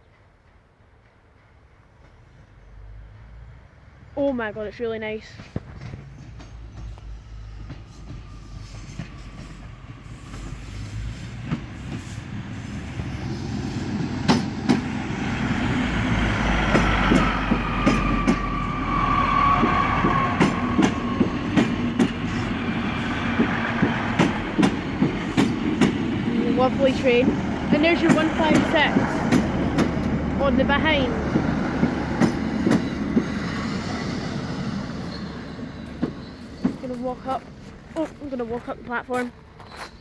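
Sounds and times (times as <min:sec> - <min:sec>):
diesel train engine: 0:00.1 - 0:40.0
wheels clicking over rail joints: 0:13.9 - 0:18.8, 0:19.5 - 0:40.0
high squeal: 0:34.6 - 0:36.8.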